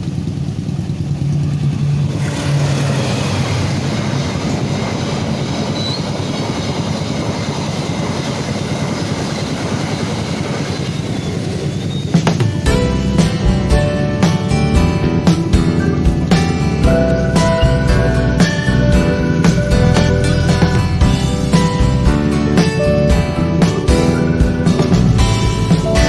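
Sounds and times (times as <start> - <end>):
train clatter: 0.0 - 26.0
train wheels on rails: 0.0 - 26.0
guitar music: 12.5 - 26.0.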